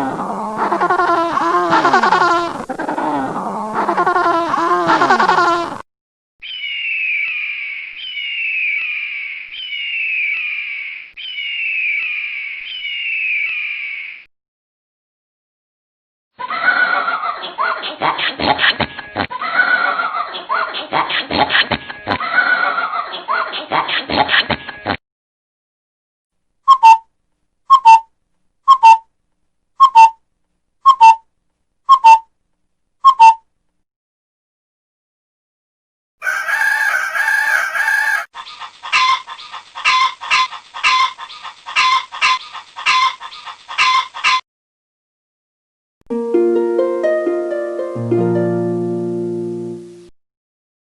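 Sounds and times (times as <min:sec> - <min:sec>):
bird whistling downward-sliding call: 0:06.4 - 0:14.2.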